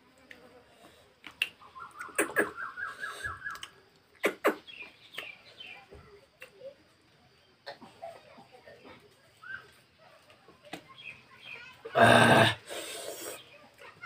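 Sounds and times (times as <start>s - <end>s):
bird calling: 1.5s - 5.8s.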